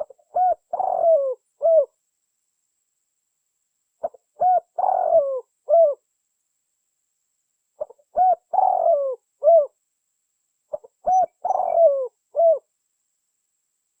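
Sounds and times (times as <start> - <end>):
dove cooing: 0.0 - 2.0, 4.0 - 6.0, 7.8 - 9.8, 10.7 - 12.7.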